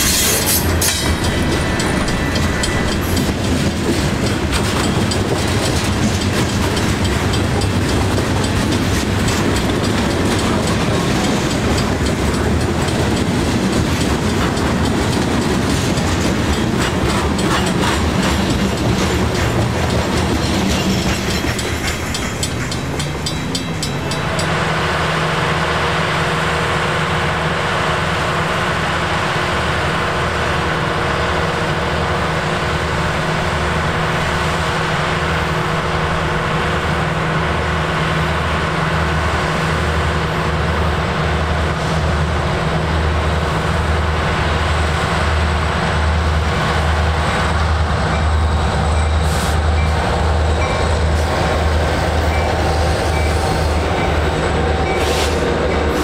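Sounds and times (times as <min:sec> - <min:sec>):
wheels clicking over rail joints: 0:00.1 - 0:24.5.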